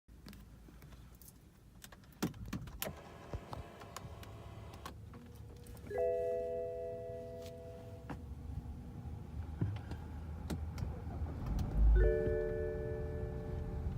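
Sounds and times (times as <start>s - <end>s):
electronic chime tone: 5.9s - 8.0s.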